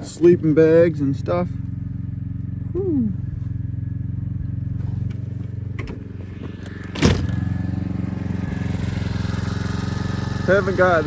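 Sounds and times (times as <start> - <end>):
generator engine running: 0.0 - 11.0
loud clunk: 5.7 - 7.5.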